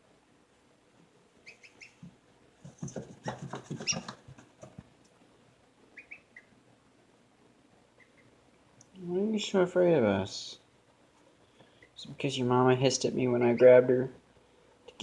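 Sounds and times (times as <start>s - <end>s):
baby birds peeping: 1.4s - 4.4s, 5.9s - 6.6s, 7.9s - 8.4s
rustling and scratching clicks: 2.6s - 5.2s.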